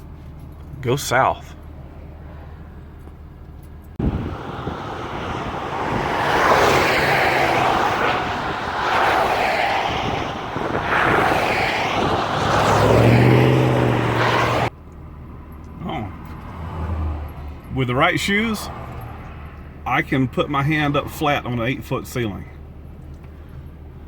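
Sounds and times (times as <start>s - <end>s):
road and wind noise: 0.0s - 24.0s
vehicle engine running: 1.6s - 15.6s.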